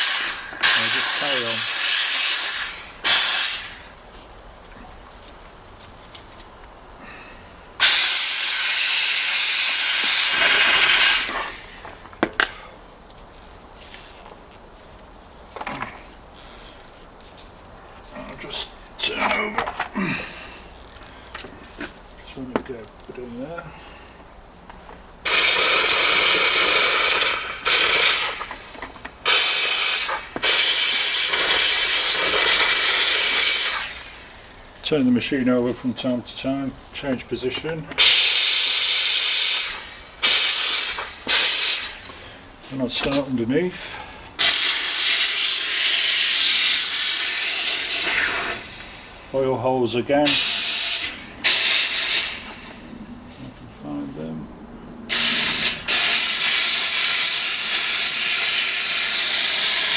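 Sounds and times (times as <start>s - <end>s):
steam cleaner jet hissing: 0.0s - 4.0s, 7.8s - 12.0s, 25.2s - 34.7s, 38.0s - 42.4s, 43.8s - 49.3s, 50.2s - 52.8s, 55.1s - 59.9s.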